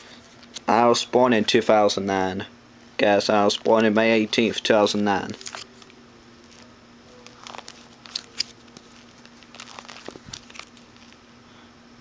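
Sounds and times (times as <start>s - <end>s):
faint steady hum: 0.0s - 12.0s
paper crinkling and rustling: 3.0s - 11.2s.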